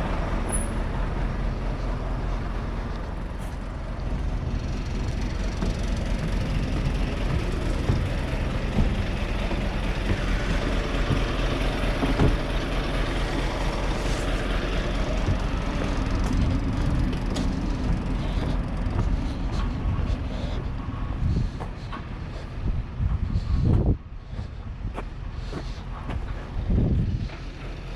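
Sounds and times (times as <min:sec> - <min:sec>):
diesel truck engine rumbling: 0:00.0 - 0:27.9.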